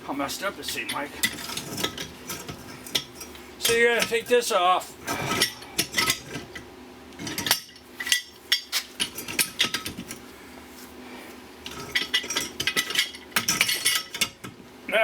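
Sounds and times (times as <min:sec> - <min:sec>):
metal tools clinking and knocking: 0:00.6 - 0:04.4, 0:05.1 - 0:06.6, 0:07.2 - 0:10.2, 0:11.6 - 0:14.5.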